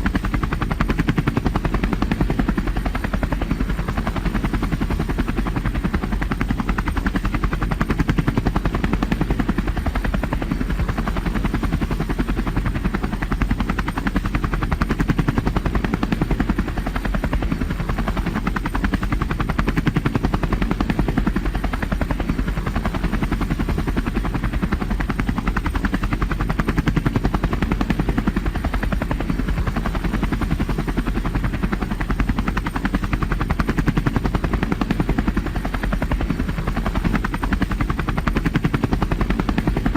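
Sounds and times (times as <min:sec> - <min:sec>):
helicopter engine noise: 0:00.0 - 0:39.9
helicopter rotor beat: 0:00.0 - 0:39.9.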